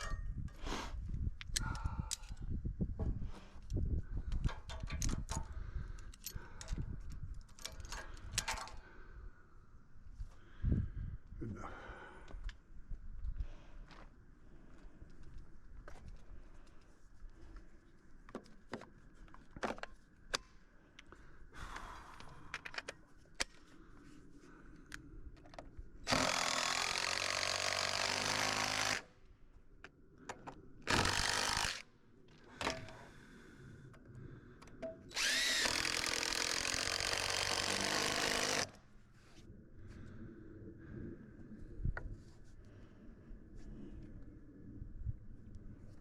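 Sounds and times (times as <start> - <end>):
electric power tool running: 26.1 - 29.0, 30.9 - 31.8, 35.1 - 38.7.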